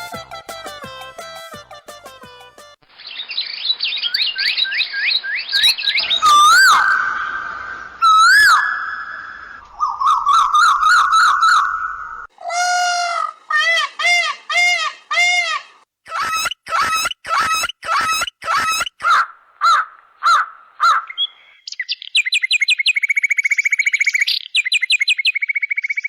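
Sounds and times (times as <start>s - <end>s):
harsh bird calls: 2.9s - 26.0s
bird trill: 3.0s - 12.3s, 14.2s - 26.0s
rising whistled bird notes: 3.0s - 12.3s
wavering bird whistles: 4.0s - 12.3s.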